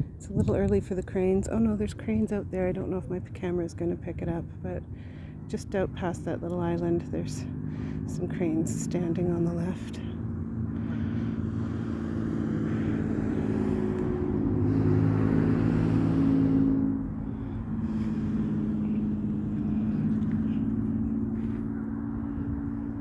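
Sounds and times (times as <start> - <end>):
vehicle approaching: 0.0 - 23.0
car passing by: 7.4 - 23.0.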